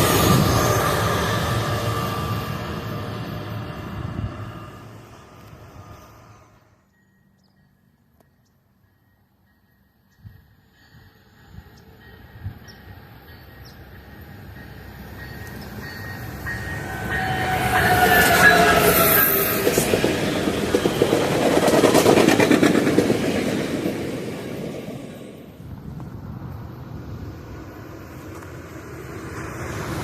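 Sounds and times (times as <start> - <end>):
passenger train passing: 0.0 - 30.0.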